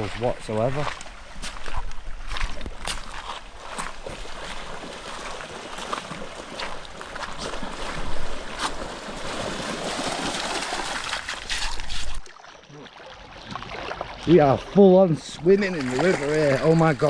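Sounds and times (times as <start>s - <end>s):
water splashes: 0.0s - 17.0s
river water rushing: 4.0s - 11.6s.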